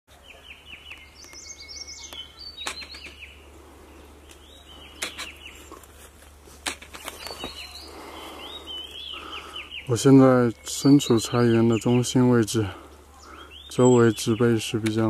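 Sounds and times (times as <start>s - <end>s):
birds singing whistled notes: 0.1s - 5.8s, 6.8s - 15.0s
sharp clicks: 2.1s - 3.2s.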